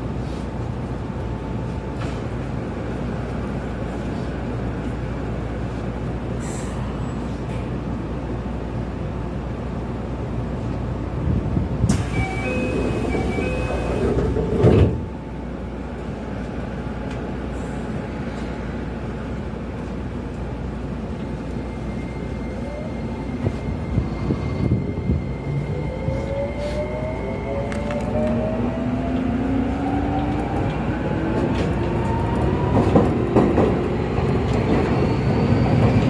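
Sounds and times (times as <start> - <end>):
electric train humming: 8.3 - 36.0.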